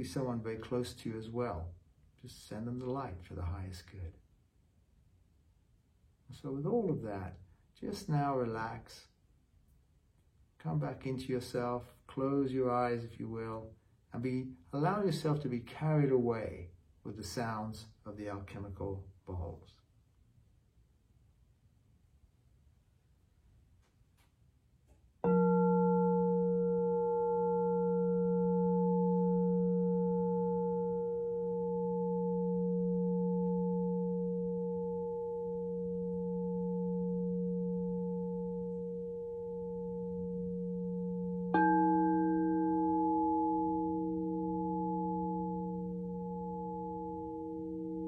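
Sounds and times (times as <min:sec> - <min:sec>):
second singing bowl ringing: 0:25.2 - 0:48.0
singing bowl ringing: 0:25.2 - 0:48.0.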